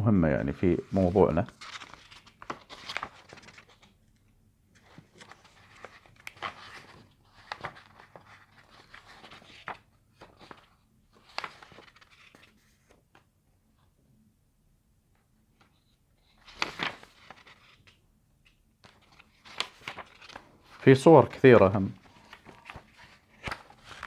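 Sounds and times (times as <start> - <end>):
book pages rustling: 0.5 - 4.0, 4.7 - 13.3, 15.6 - 24.0
paper crackles: 0.6 - 3.9, 4.8 - 13.0, 16.2 - 18.0, 18.8 - 24.0.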